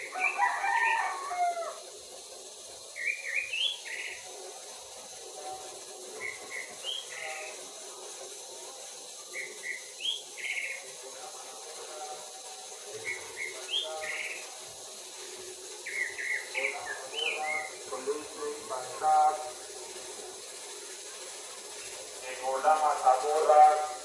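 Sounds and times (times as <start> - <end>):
songbird singing: 3.0 - 4.2, 6.2 - 7.4, 9.4 - 10.8, 15.8 - 17.9.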